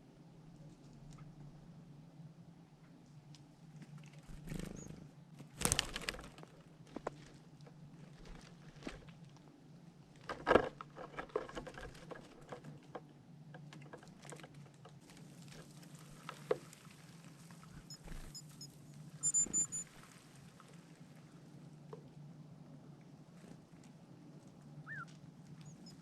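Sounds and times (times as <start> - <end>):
squirrel scrabbling and tapping: 4.0 - 9.2
short high chirps: 17.9 - 19.8.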